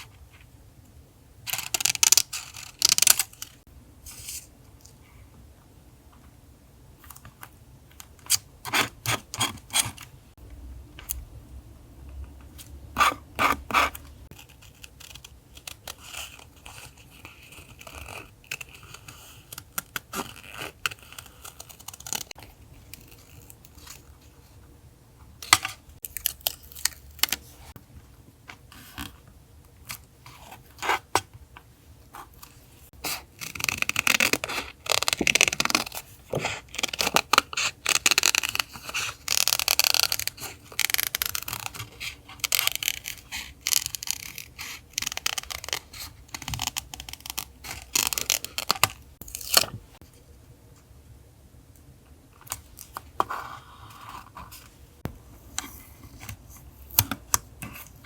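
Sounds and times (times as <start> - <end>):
faint low hum: 10.4 - 14.7.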